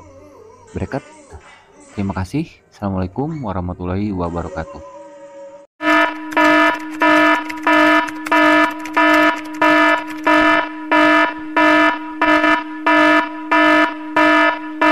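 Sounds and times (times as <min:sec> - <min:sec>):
electronic alarm beeping: 0:05.8 - 0:14.9.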